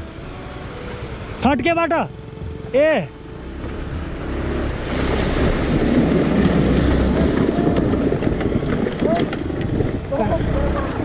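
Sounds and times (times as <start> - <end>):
motorcycle engine running: 0.0 - 11.0
water churning and splashing: 2.2 - 10.5
wind buffeting microphone: 3.8 - 11.0.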